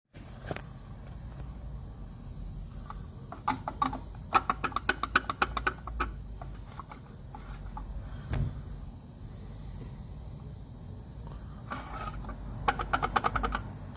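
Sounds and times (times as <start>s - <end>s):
dull thump: 8.3s - 8.6s.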